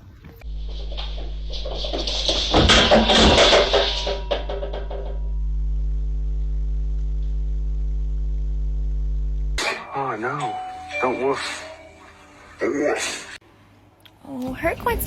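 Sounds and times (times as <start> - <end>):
low electrical hum: 0.0 - 9.6
knocks and rattling clatter: 0.4 - 5.4.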